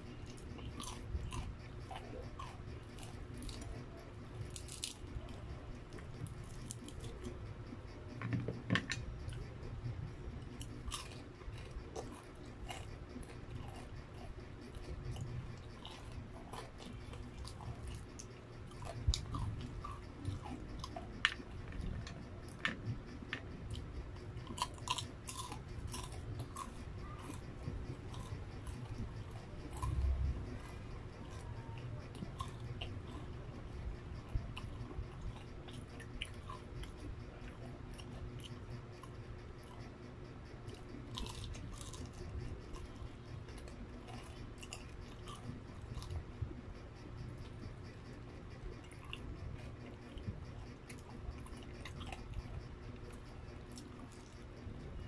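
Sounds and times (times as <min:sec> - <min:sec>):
chewing and crunching fried food: 0:00.0 - 0:55.0.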